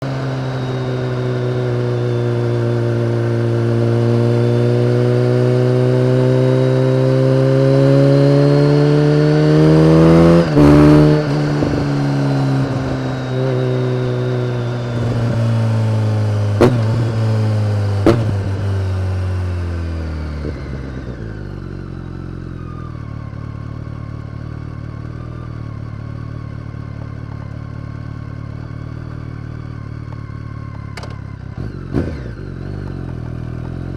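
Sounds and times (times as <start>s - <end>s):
motorcycle engine revving: 0.0s - 33.9s
exhaust pops: 14.9s - 19.0s.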